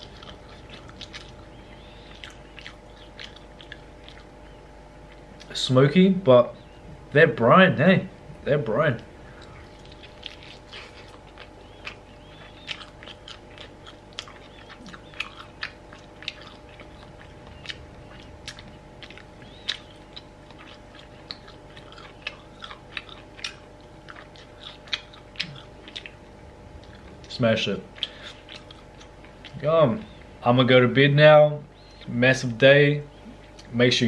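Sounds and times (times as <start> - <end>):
mouth and teeth clicks: 0.0 - 4.3, 9.4 - 26.2, 27.9 - 30.2
person chewing: 0.0 - 5.6, 9.1 - 30.4, 33.2 - 33.8
faint steady hum: 0.0 - 34.0.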